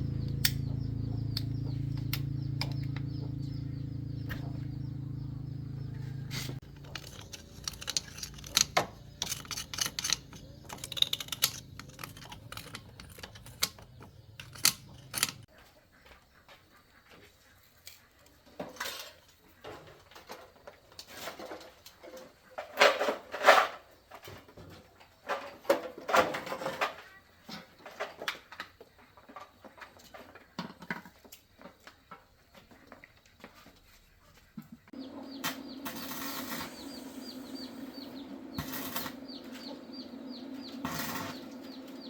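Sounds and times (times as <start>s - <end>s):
scraping: 6.2s - 15.5s
metal parts and tools clattering: 6.6s - 15.5s, 40.8s - 41.5s.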